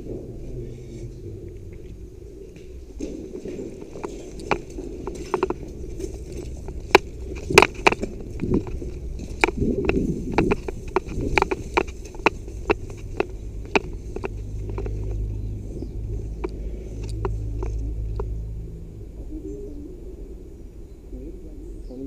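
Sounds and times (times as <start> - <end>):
footsteps on rough ground: 0.0 - 18.4
low steady rumble: 0.0 - 22.0
sharp knocks: 2.7 - 15.3.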